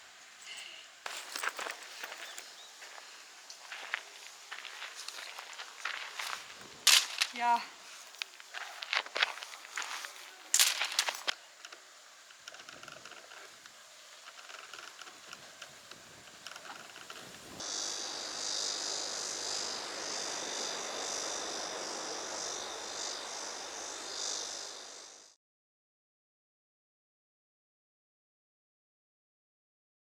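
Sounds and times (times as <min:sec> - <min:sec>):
insects buzzing: 0:00.0 - 0:25.4
faint clicks: 0:08.0 - 0:17.6.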